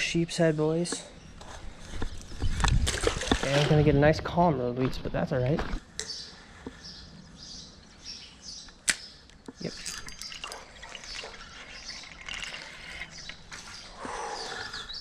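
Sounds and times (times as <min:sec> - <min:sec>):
birds chirping: 0:00.0 - 0:15.0
sharp click: 0:08.7 - 0:09.6.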